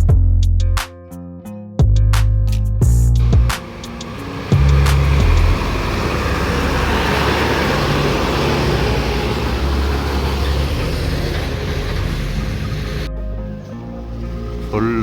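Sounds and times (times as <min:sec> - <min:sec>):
vehicle engine and tyre rumble: 0:03.2 - 0:15.0.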